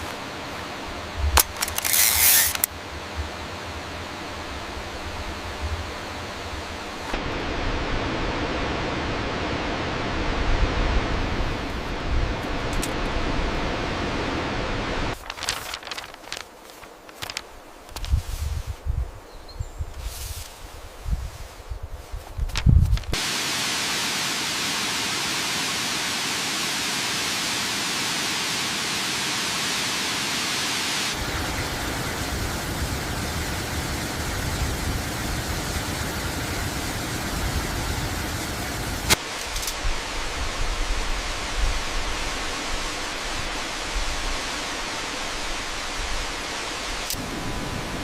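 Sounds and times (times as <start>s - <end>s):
waterfall rushing: 23.2s - 40.4s.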